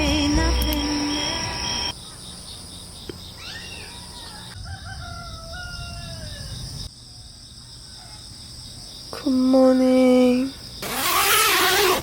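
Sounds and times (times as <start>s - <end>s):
rooster crowing: 3.8s - 6.7s.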